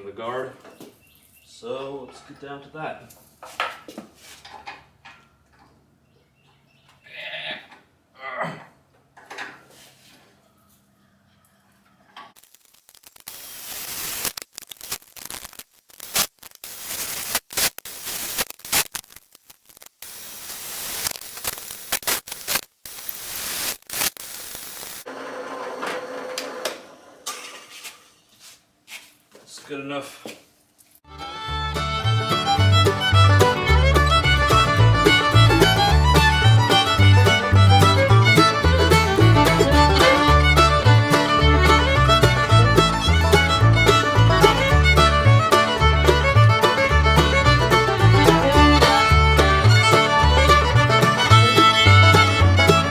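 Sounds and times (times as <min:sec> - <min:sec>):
harsh power tool noise: 0:12.4 - 0:27.1.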